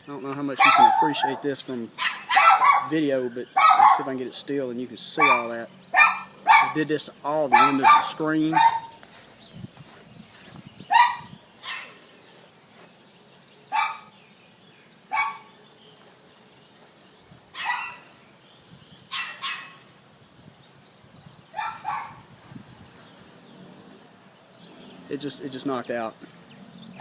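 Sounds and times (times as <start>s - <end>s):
dog barking: 0.6s - 3.0s, 3.6s - 4.1s, 5.2s - 6.8s, 7.5s - 9.0s, 10.9s - 11.9s, 13.7s - 14.1s, 15.1s - 15.5s, 17.6s - 18.1s, 19.1s - 19.8s, 21.6s - 22.2s.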